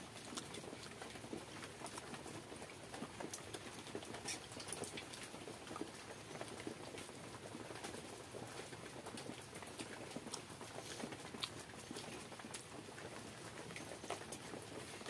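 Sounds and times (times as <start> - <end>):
wet chewing and lip-smacking: 0.1 - 2.2, 9.1 - 15.0.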